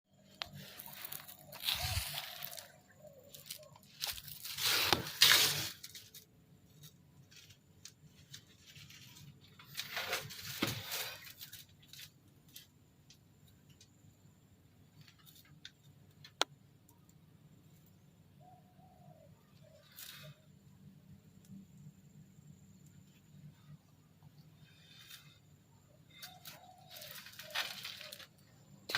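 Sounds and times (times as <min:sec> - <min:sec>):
scraping rustling handling noise: 0:00.2 - 0:12.8, 0:26.1 - 0:28.9.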